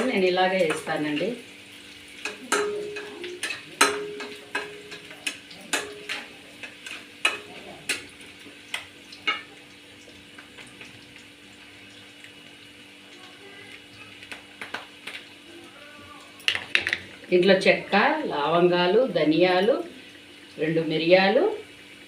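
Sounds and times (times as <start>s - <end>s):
frying sizzle: 0.0s - 22.0s
spatula knocking on pan: 2.2s - 9.6s.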